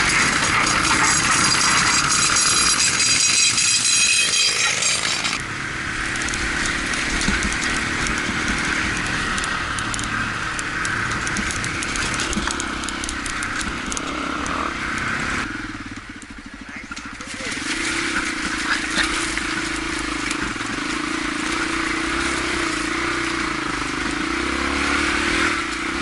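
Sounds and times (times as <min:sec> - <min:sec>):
motorcycle engine running: 0:00.0 - 0:26.0
road noise: 0:00.0 - 0:26.0
rushing wind: 0:00.0 - 0:26.0
rattling clicks: 0:06.1 - 0:15.1.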